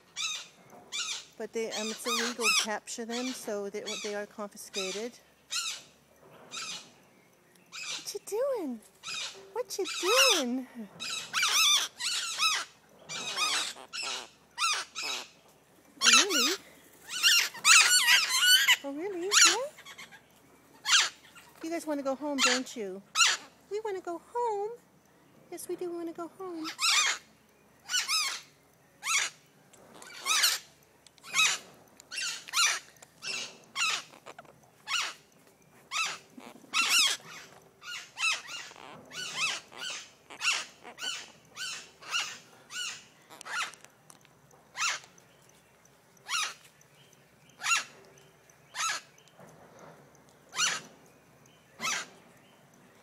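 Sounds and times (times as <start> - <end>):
parrots shrill calls: 0.1 - 6.9, 7.7 - 8.4, 9.0 - 15.4, 16.0 - 21.5, 22.4 - 23.6, 26.6 - 35.3, 35.9 - 43.9, 44.7 - 45.2, 46.2 - 46.7, 47.6 - 48.0, 48.7 - 49.1, 50.5 - 51.0, 51.8 - 52.2.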